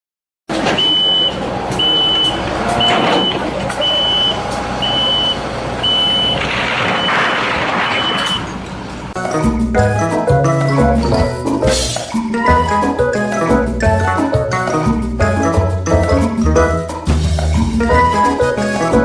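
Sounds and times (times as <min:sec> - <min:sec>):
engine and machinery running: 0:00.5 - 0:09.2
reversing alarm beeping: 0:00.7 - 0:08.6.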